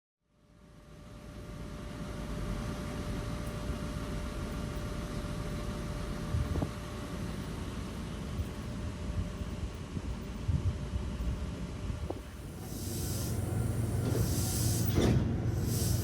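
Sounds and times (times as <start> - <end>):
faint train whine: 0.4 - 16.0
train rumbling: 2.4 - 16.0.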